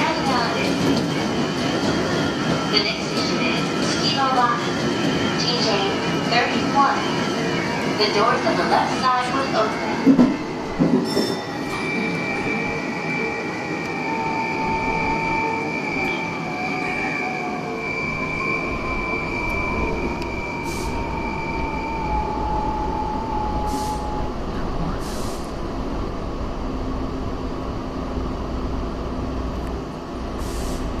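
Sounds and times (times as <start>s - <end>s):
train running rumble: 0.0s - 12.2s.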